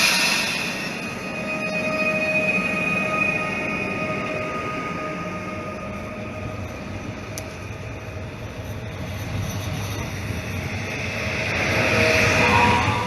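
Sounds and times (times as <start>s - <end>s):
faint whine: 0.0s - 13.0s
train rumbling on rails: 0.0s - 13.0s.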